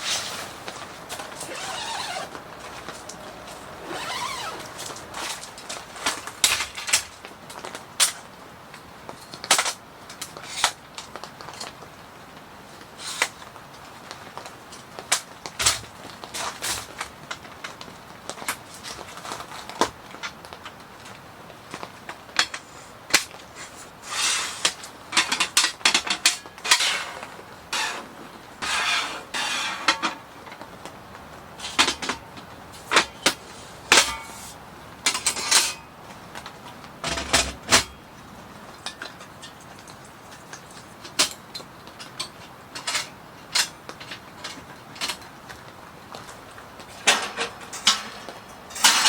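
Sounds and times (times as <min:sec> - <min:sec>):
rustling: 0:00.0 - 0:07.3
objects clicking and knocking: 0:38.7 - 0:49.0.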